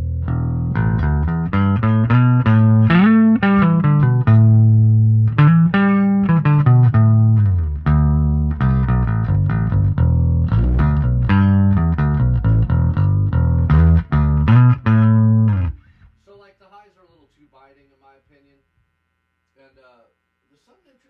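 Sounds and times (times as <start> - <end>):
electric bass line: 0.0 - 16.0.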